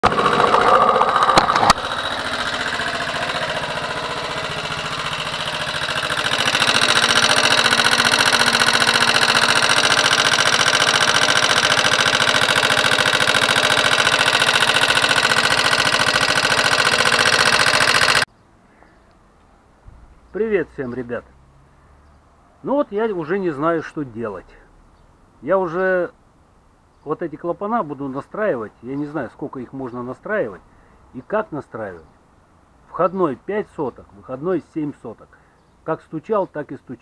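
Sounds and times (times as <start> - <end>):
fast ticking engine knock: 0.0 - 18.3
motorcycle engine idling: 0.0 - 18.3.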